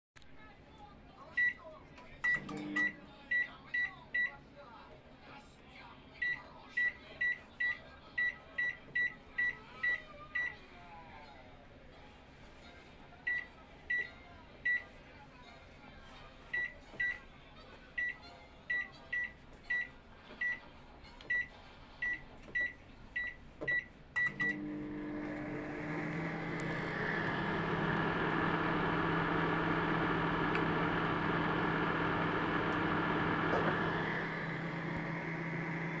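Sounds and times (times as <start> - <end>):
microwave oven humming: 2.2 - 3.2, 24.2 - 36.0
microwave keypad beeps: 2.2 - 4.3, 21.3 - 24.7
microwave oven click: 2.3 - 3.0, 24.2 - 36.0.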